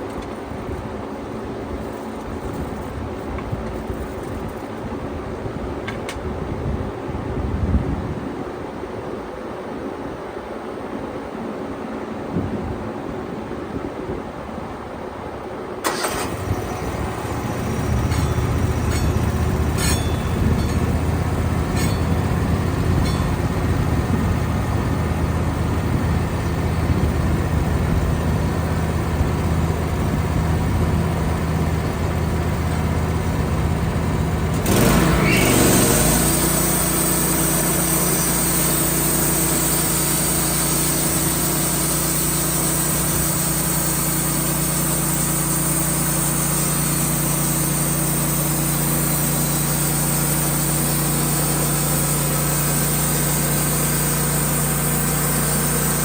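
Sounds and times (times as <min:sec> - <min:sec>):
sawmill engine running: 0:00.0 - 0:05.0, 0:15.8 - 0:56.0
saw blade hiss: 0:15.8 - 0:25.4, 0:34.5 - 0:56.0.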